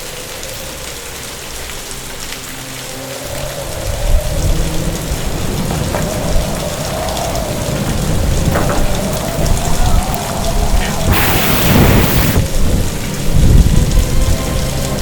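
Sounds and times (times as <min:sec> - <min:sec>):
heavy rain falling: 0:00.0 - 0:15.0
deep rumble of thunder: 0:03.4 - 0:15.0.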